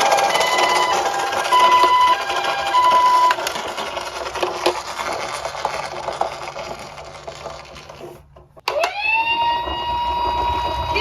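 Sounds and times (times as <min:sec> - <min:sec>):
toy cars rattling down a slope: 0:00.0 - 0:11.0.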